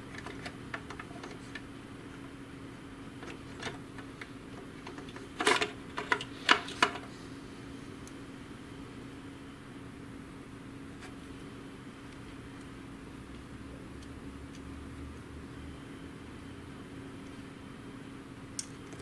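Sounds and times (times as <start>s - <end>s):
plastic printer parts clicking: 0.0s - 2.3s, 3.2s - 7.1s
steady hum: 0.0s - 19.0s.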